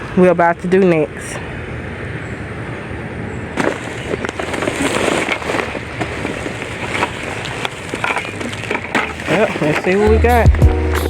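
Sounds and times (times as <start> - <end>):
soil and dry plants rustling in bucket: 3.5 - 10.6.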